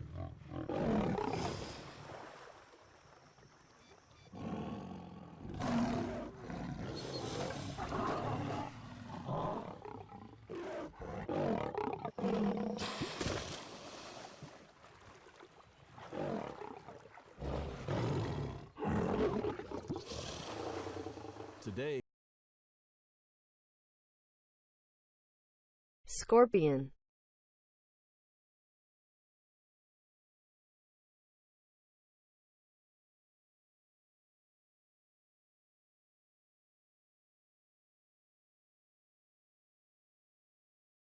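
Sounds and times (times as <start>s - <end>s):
lions growling and roaring: 0.0s - 1.9s, 4.3s - 14.4s, 15.9s - 21.7s.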